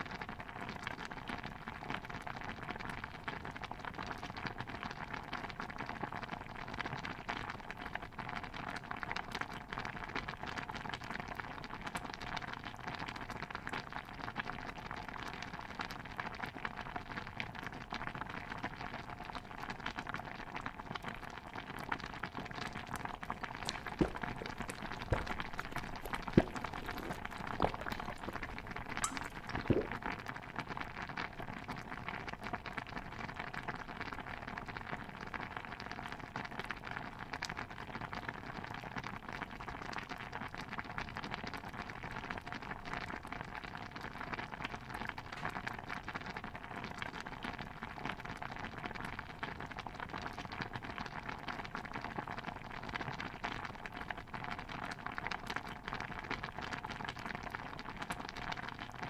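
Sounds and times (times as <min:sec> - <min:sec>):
stew bubbling in a pot: 0:00.0 - 0:59.0
sharp pops or knocks: 0:23.4 - 0:30.0.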